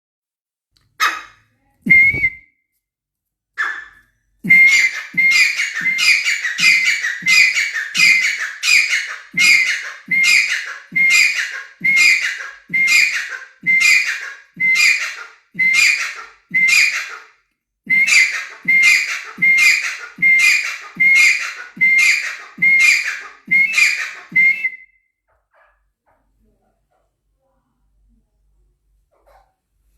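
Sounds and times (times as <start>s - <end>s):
bird calling with whistled notes: 3.6s - 17.2s, 17.9s - 25.1s.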